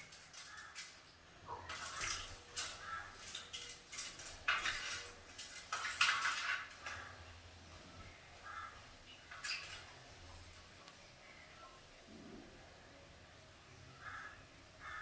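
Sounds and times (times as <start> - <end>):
bird splashing in water: 0.1 - 7.4, 8.4 - 10.6.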